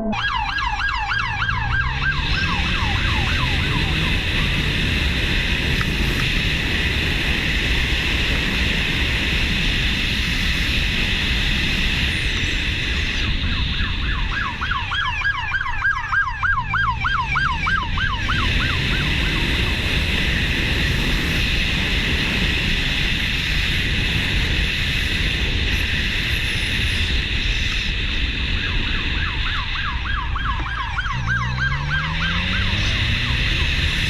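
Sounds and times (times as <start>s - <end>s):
siren yelping: 0.0s - 5.9s, 13.2s - 21.0s, 28.5s - 34.0s
wind and road noise: 0.0s - 34.0s.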